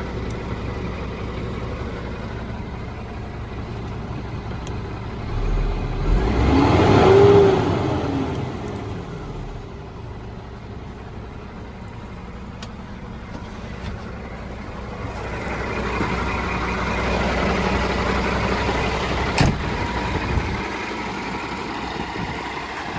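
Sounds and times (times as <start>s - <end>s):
truck diesel engine revving: 4.6s - 10.0s, 13.3s - 22.9s.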